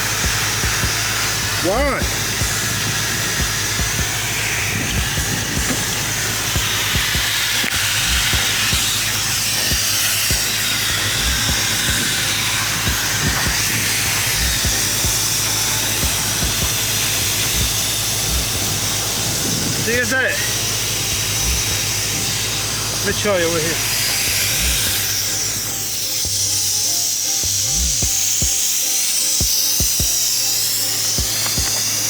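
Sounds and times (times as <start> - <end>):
low thumps: 0.0 - 20.0, 21.1 - 22.0, 24.3 - 25.4, 27.5 - 28.6
sandblaster hissing: 0.0 - 32.0.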